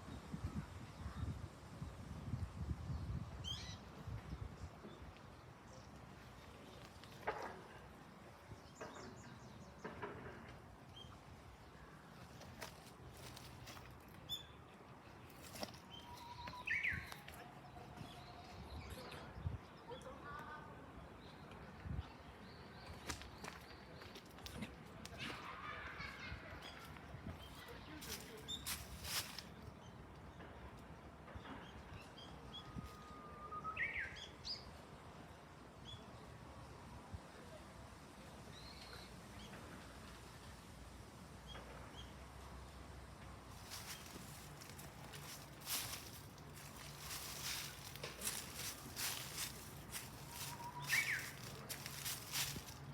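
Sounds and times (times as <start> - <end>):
bird whistling song: 33.3 - 34.3, 50.4 - 51.4.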